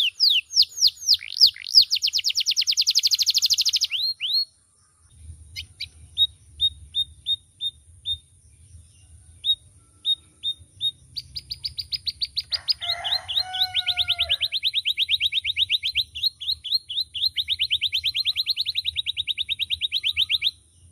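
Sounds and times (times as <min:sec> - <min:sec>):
canary singing trill: 0:00.0 - 0:20.9.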